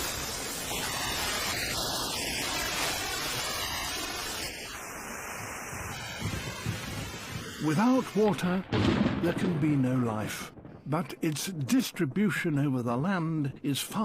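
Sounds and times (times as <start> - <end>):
steady rushing noise: 0.0 - 8.6.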